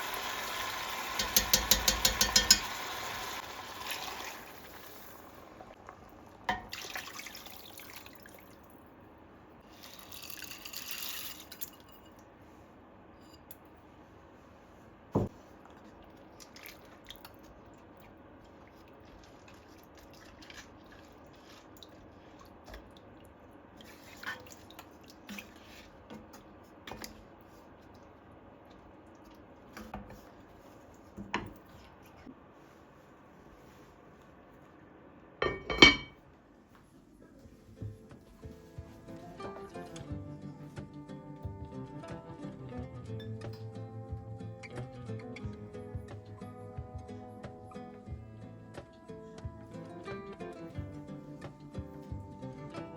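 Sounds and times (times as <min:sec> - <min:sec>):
water running: 0:00.0 - 0:08.7.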